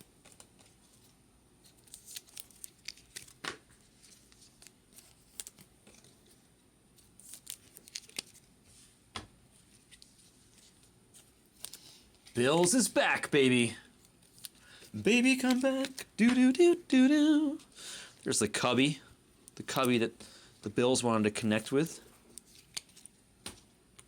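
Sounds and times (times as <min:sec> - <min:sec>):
cards sliding into plastic sleeves: 0:00.2 - 0:06.4, 0:07.2 - 0:08.5, 0:09.7 - 0:18.3, 0:21.7 - 0:23.7.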